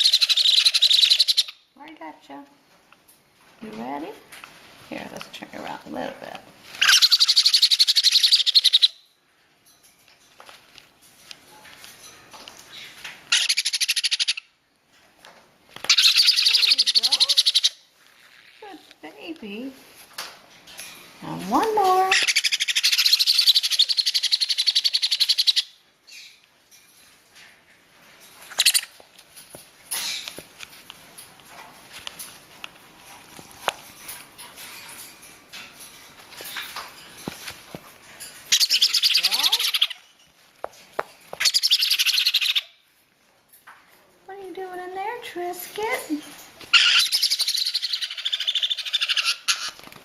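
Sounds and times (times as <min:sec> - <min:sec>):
parrot chicks food-begging calls: 0:00.0 - 0:02.0, 0:06.7 - 0:09.1, 0:12.6 - 0:14.6, 0:15.7 - 0:18.0, 0:20.2 - 0:26.4, 0:28.3 - 0:29.2, 0:38.2 - 0:40.4, 0:41.3 - 0:42.9, 0:45.2 - 0:50.0.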